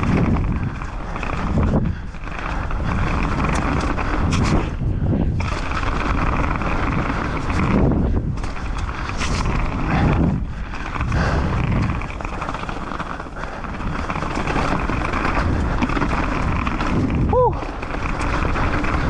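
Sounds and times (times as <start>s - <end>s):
bike rattling clicks: 0.0s - 19.0s
rushing noise of tyres and wind: 0.0s - 19.0s.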